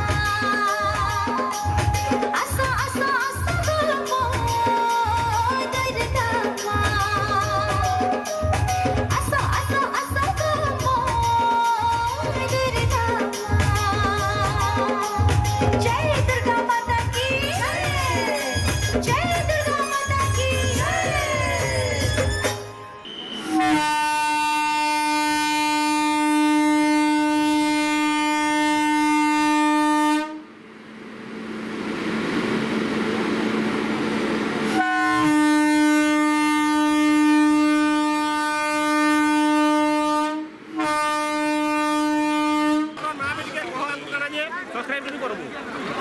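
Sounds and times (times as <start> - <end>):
train horn blasts: 22.5 - 30.6, 34.4 - 43.1
rushing noise: 30.5 - 35.5.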